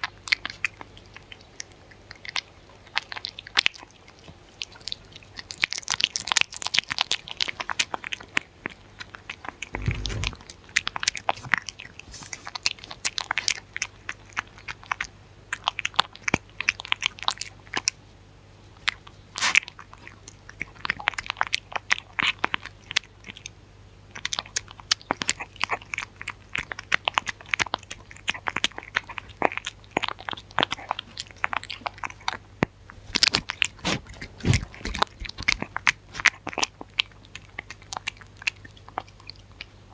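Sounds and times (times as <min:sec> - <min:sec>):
dog chewing and crunching food: 0:00.0 - 0:18.0, 0:18.7 - 0:39.9
low thump: 0:09.7 - 0:10.4.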